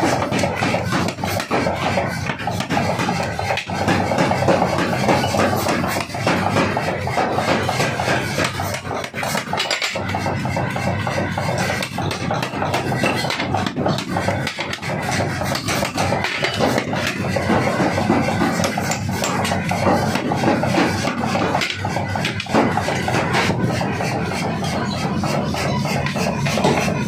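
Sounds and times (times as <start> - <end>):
forging hammer blows: 0.0 - 27.0
machine hum: 10.0 - 27.0.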